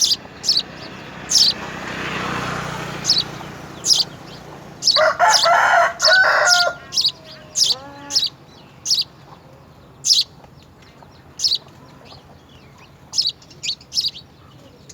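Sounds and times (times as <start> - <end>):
short high bird chirps: 0.0 - 1.6, 10.1 - 10.3
harsh bird call: 0.0 - 9.2, 10.0 - 10.3.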